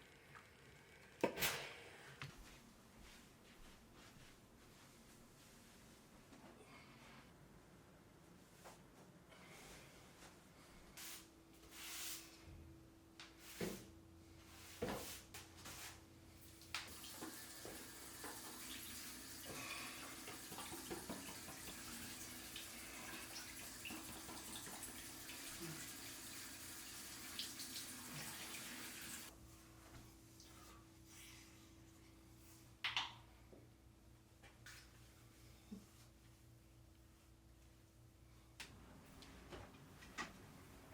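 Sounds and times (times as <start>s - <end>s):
water running: 16.4s - 29.3s.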